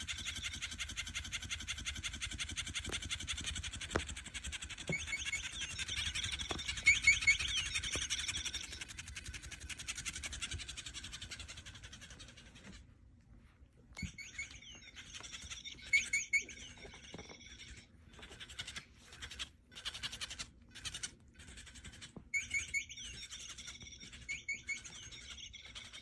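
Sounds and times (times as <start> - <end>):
small birds twittering: 4.7 - 8.9, 14.0 - 17.8, 22.0 - 26.0
loud high bird chirps: 4.9 - 8.8, 14.0 - 17.8, 22.3 - 26.0.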